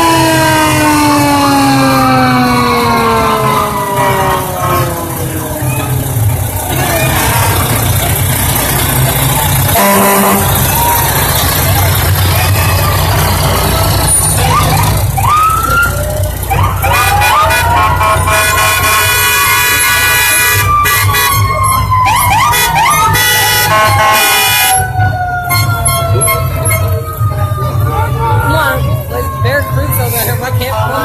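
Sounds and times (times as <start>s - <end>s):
fire truck sirens whooping: 0.0s - 31.0s
truck engine running: 0.0s - 31.0s
air horn blast: 3.4s - 5.4s, 9.7s - 10.8s, 16.8s - 24.8s.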